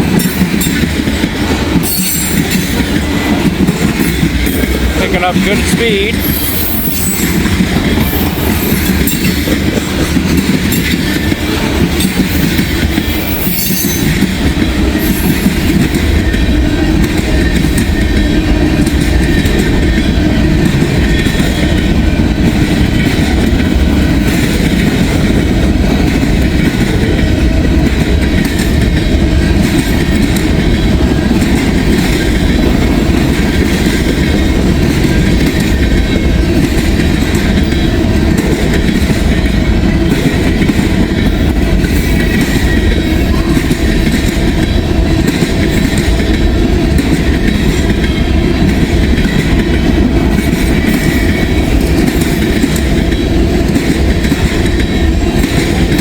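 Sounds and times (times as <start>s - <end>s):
clickety-clack of rail joints: 0.0s - 56.0s
train wheels rumbling on rails: 0.0s - 56.0s
high-pitched wheel squeal: 6.2s - 7.4s, 13.1s - 14.2s.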